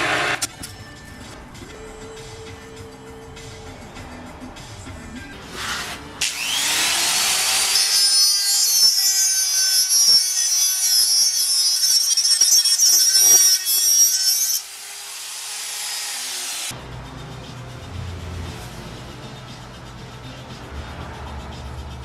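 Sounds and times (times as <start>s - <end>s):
power tool whining: 0.0s - 0.5s, 6.2s - 16.7s.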